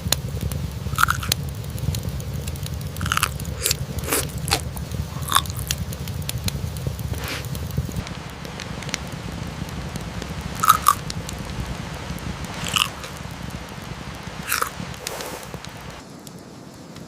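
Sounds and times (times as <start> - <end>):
fire crackling: 0.0 - 17.0
rain hiss: 0.0 - 17.0
crisp crunches: 1.0 - 1.4, 3.0 - 5.8, 10.6 - 11.0, 12.6 - 13.2, 14.4 - 15.8.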